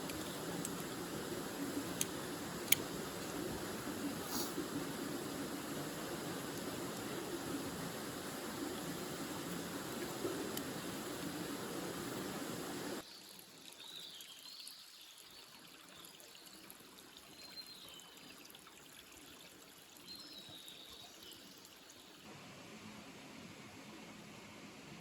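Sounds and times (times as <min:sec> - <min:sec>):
steady hiss: 0:00.0 - 0:13.0
river water flowing: 0:00.0 - 0:14.0.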